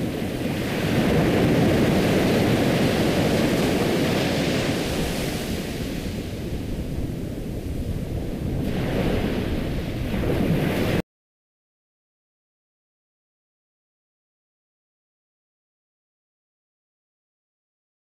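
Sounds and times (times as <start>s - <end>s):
ocean waves on a shore: 0.0s - 11.0s.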